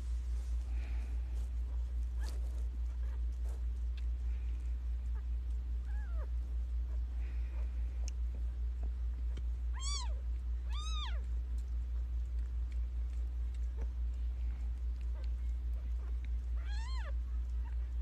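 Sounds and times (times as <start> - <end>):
steady low hum: 0.0 - 18.0
kittens mewing: 5.0 - 8.1, 9.7 - 11.3, 13.7 - 17.9.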